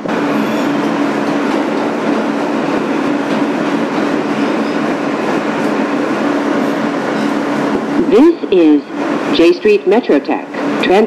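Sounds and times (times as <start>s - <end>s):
subway car wheels rumbling: 0.0s - 11.0s.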